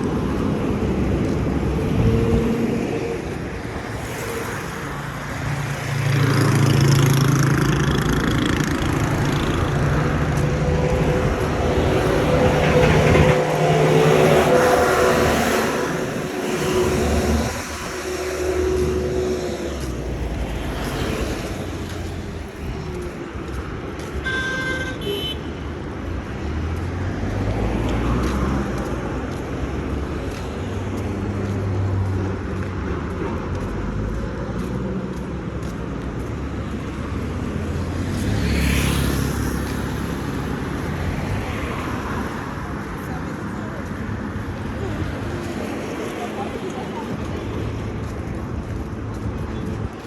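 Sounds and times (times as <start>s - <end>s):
motor vehicles rumbling past: 0.0s - 50.0s
car horn toot: 24.2s - 25.5s.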